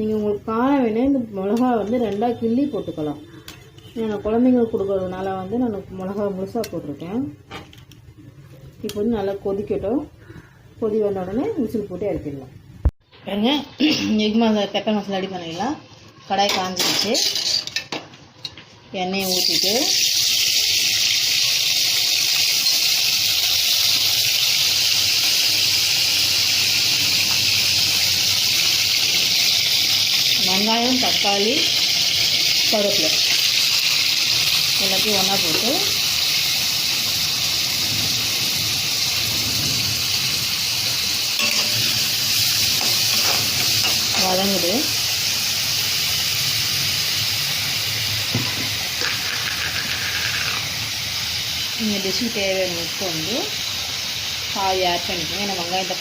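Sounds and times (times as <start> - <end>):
hot oil sizzling: 0.0 - 56.0.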